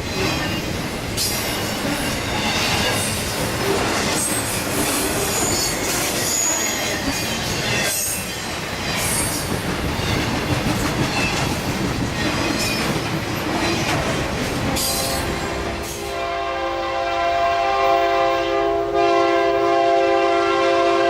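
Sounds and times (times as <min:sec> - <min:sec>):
train wheels squealing: 0:00.0 - 0:10.4
train rumbling and clattering: 0:00.0 - 0:16.4.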